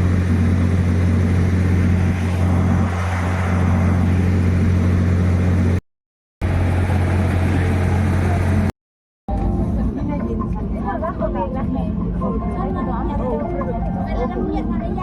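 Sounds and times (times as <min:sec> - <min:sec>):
loud engine hum: 0:00.0 - 0:05.8, 0:06.4 - 0:08.7.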